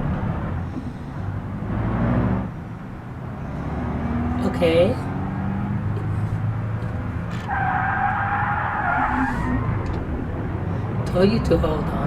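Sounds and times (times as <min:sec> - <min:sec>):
car engine running: 0:00.0 - 0:12.0
tyre squeal: 0:07.3 - 0:10.0.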